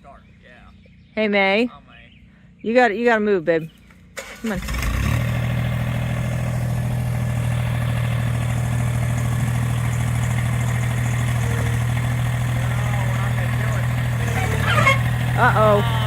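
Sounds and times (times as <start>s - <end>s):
engine idling: 4.0s - 16.0s.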